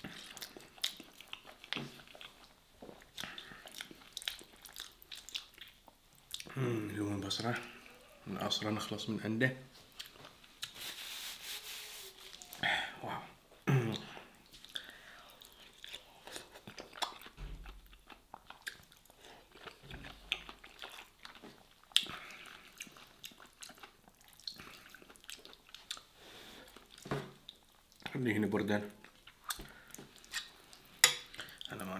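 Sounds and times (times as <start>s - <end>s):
person chewing wetly: 0.0s - 6.6s, 9.9s - 10.8s, 14.0s - 28.1s
person humming: 6.5s - 7.1s.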